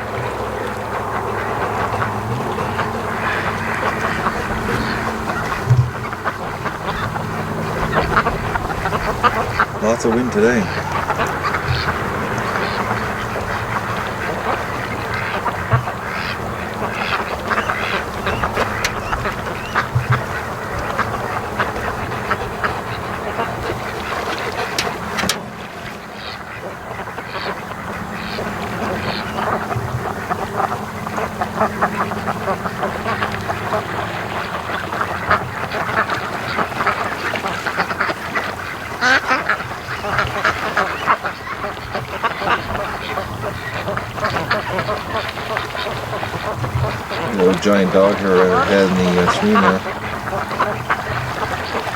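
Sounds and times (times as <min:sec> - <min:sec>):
wind noise on microphone: 0:00.0 - 0:25.8
ducks quacking: 0:00.0 - 0:51.9.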